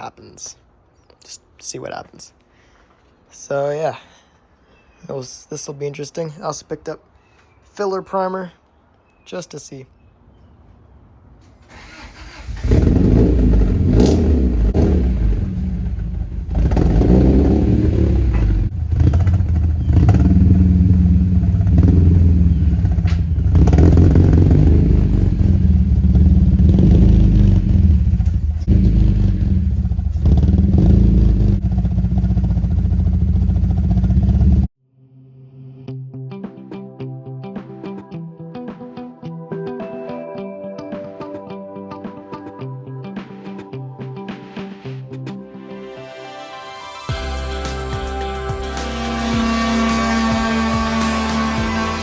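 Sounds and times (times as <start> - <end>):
motor running loudly: 47.2 - 52.0.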